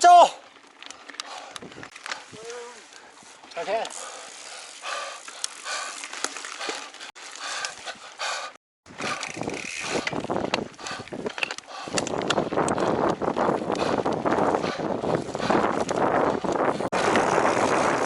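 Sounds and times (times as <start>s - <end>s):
bike rattling over rough trail: 0.2s - 18.0s
bike freehub ticking: 8.9s - 18.0s.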